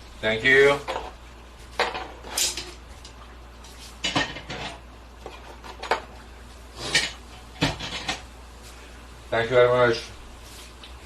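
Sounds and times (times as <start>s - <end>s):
low steady hum: 0.0s - 11.0s
dishes and cutlery clinking: 4.0s - 6.1s.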